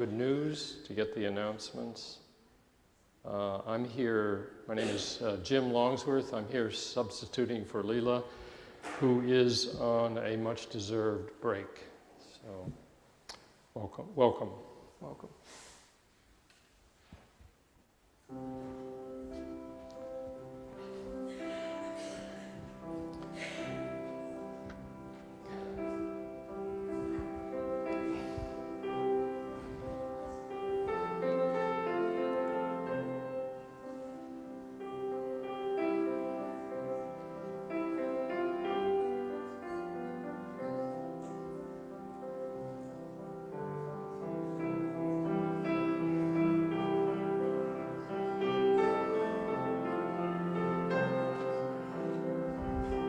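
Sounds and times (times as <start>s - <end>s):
slow keyboard chords: 18.3s - 53.0s.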